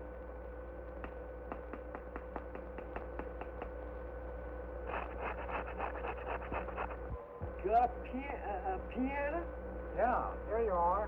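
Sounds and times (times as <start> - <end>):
steady hum: 0.0 - 11.0
sharp clicks: 1.0 - 3.7.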